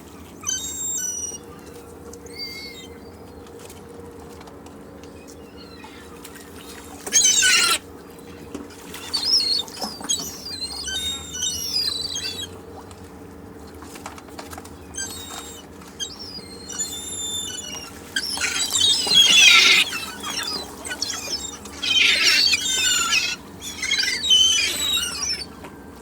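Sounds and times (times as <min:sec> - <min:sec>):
seagulls calling: 0:00.4 - 0:03.1, 0:05.3 - 0:07.9, 0:08.8 - 0:12.7, 0:14.8 - 0:26.0
beach background: 0:16.2 - 0:25.6.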